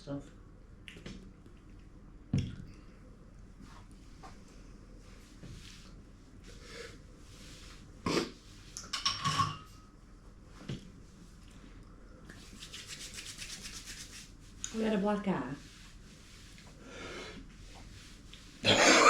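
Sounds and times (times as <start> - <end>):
tableware knocks and clinks: 8.9 - 9.8.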